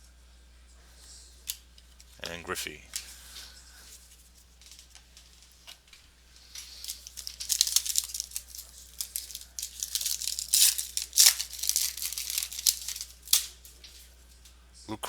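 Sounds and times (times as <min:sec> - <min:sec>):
wrapper tearing and crinkling: 0:06.4 - 0:14.1.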